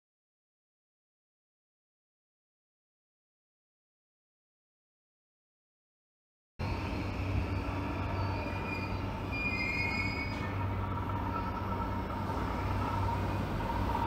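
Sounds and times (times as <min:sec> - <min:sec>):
train rail rumble: 0:06.6 - 0:14.0
high wheel squeals: 0:07.3 - 0:13.6.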